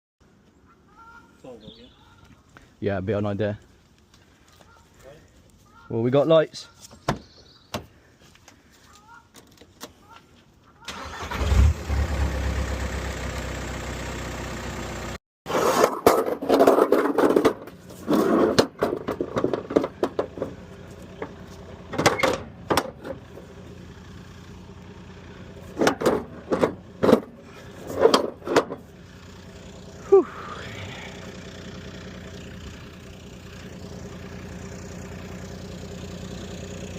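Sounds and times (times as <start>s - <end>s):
van engine turning over and running: 10.9s - 15.2s, 17.1s - 36.9s.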